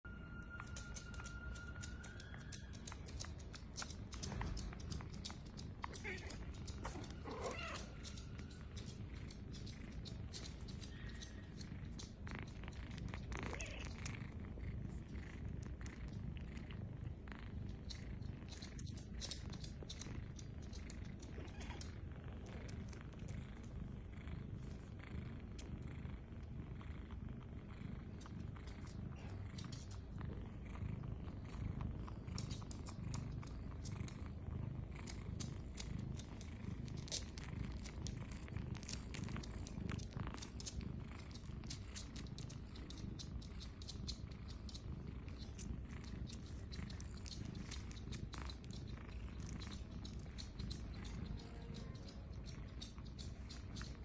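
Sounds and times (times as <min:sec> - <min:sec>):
cats purring: 0:00.0 - 0:54.0
kittens suckling clicks: 0:00.7 - 0:16.7, 0:17.5 - 0:23.8, 0:28.0 - 0:30.2, 0:31.2 - 0:54.0.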